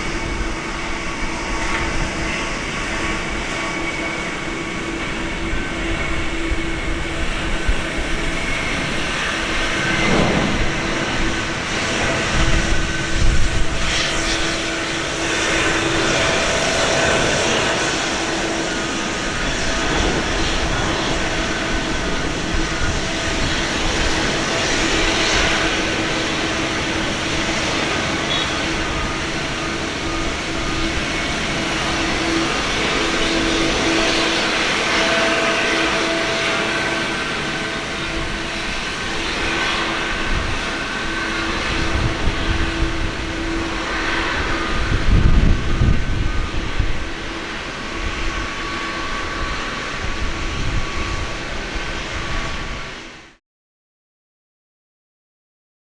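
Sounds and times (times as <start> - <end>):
jet engines roaring: 0.0 - 53.4
heavy low rumbles: 6.1 - 34.1.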